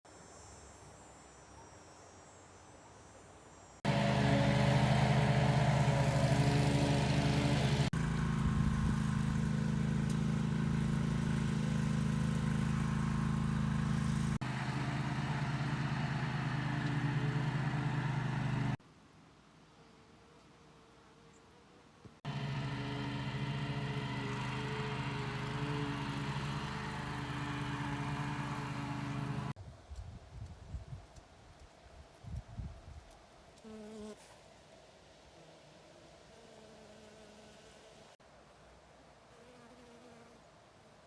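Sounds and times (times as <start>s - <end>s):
engine running steadily: 3.9s - 18.8s, 22.2s - 29.6s.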